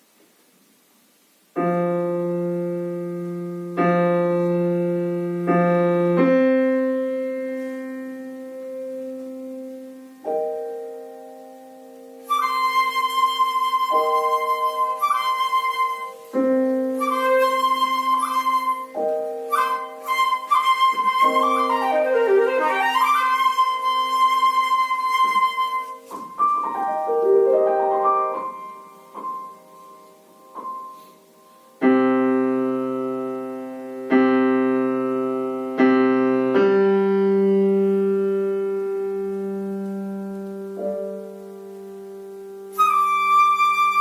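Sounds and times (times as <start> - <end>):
loud piano chords: 1.5 - 44.0
piano playing: 1.5 - 44.0
flute melody: 1.6 - 41.5, 42.6 - 44.0.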